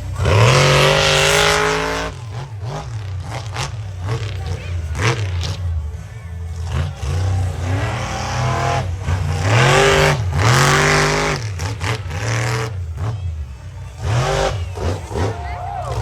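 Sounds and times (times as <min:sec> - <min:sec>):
monster truck engine revving: 0:00.0 - 0:16.0.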